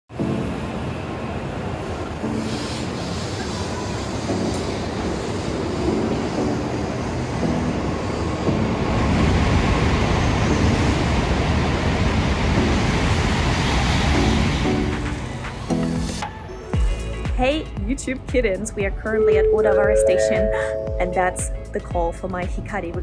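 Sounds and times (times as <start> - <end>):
high-speed train passing: 0.1 - 16.5.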